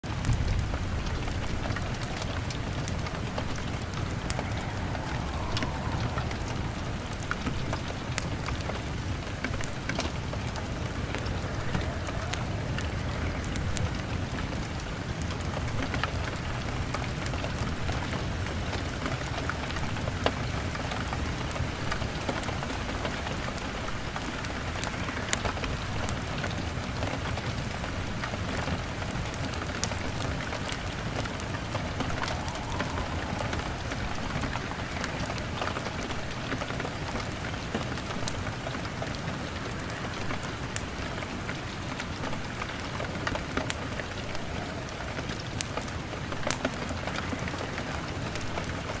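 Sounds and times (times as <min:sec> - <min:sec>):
fire crackling and popping: 0:00.0 - 0:49.0
rain on a window: 0:00.0 - 0:49.0
low steady rumble: 0:00.3 - 0:15.1.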